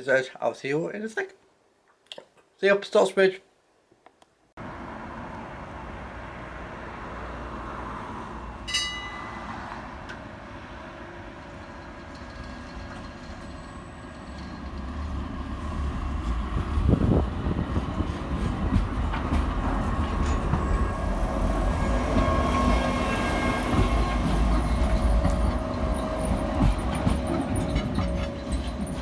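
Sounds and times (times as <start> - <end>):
rail vehicle rumbling on track: 4.6 - 29.0.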